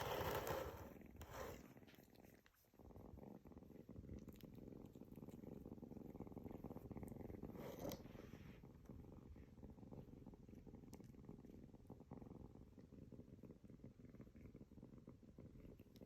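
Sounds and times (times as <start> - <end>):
soft rustle: 0.0 - 9.8
kitten purring: 0.0 - 16.0.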